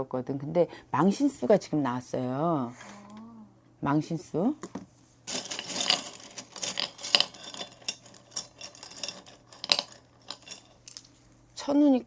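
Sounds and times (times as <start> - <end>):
small hard objects clinking: 5.3 - 11.1.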